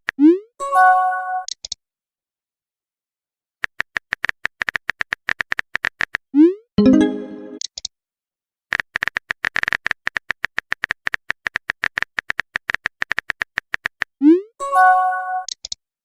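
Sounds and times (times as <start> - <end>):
keyboard typing clicks: 15.4 - 15.8.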